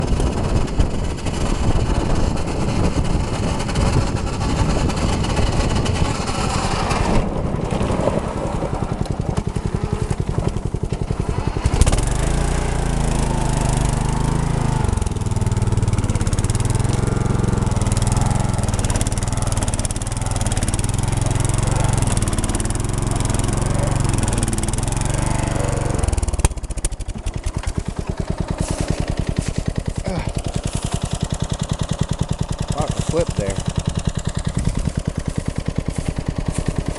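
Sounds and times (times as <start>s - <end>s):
tractor engine running: 0.0s - 36.9s
heavy low rumble: 14.6s - 36.9s.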